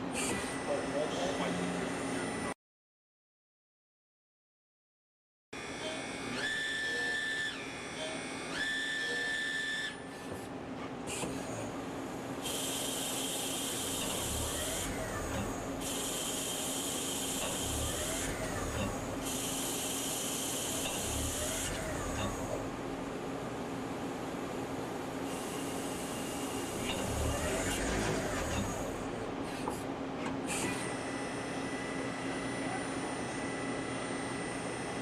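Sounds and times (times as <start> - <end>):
lathe high whine: 5.6 - 10.1, 12.2 - 23.2, 24.0 - 29.6, 30.7 - 35.0
machine hum: 11.7 - 30.2.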